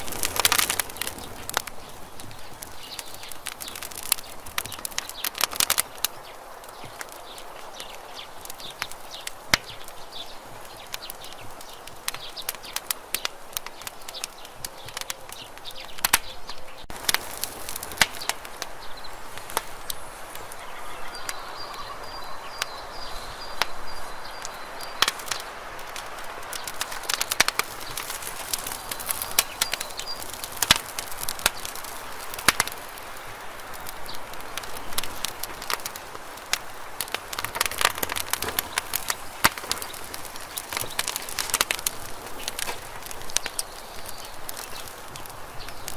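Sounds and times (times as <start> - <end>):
campfire crackling and popping: 0.0 - 45.9.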